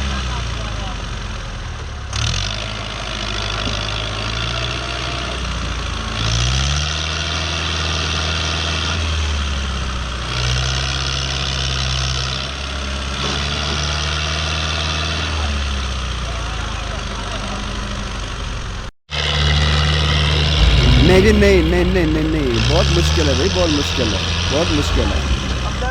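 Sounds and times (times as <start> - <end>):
tractor diesel engine labouring: 20.4 - 25.9.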